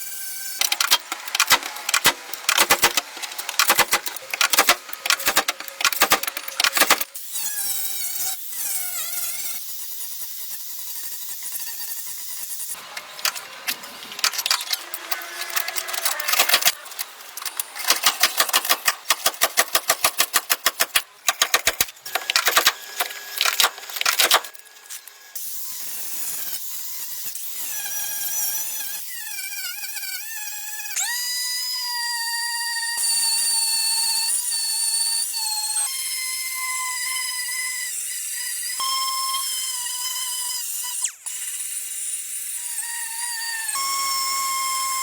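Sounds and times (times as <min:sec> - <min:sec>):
fast-spinning power tool whine: 0:00.0 - 0:45.0
rapid mechanical clatter: 0:00.6 - 0:07.2, 0:12.8 - 0:25.2.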